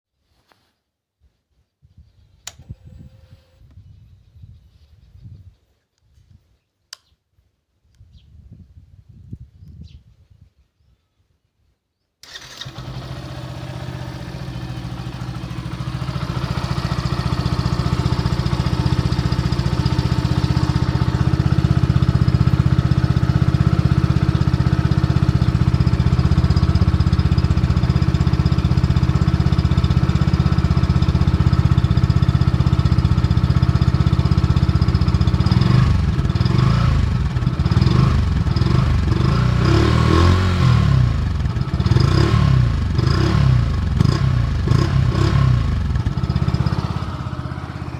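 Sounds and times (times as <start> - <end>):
motorcycle engine idling and revving: 12.2 - 47.9.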